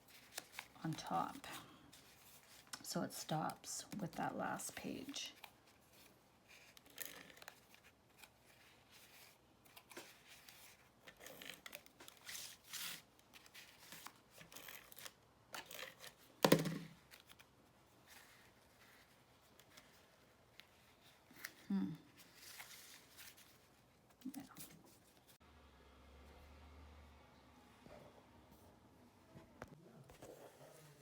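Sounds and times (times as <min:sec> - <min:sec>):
paper rustling: 0:00.0 - 0:01.2, 0:17.0 - 0:25.4.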